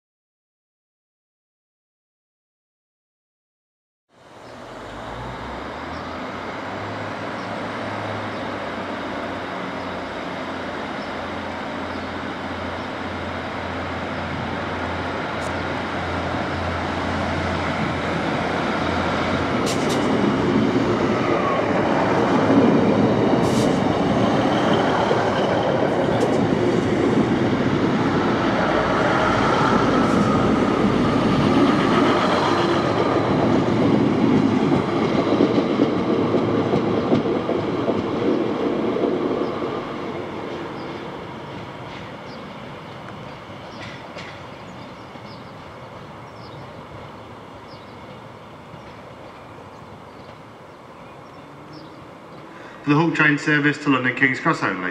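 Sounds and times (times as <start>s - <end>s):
train wheel and rail noise: 4.2s - 54.9s.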